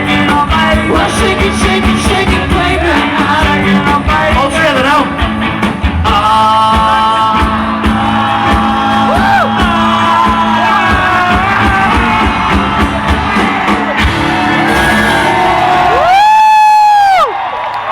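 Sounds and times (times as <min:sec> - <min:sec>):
live rock band playing: 0:00.0 - 0:17.3
people shouting and whooping: 0:07.8 - 0:17.9.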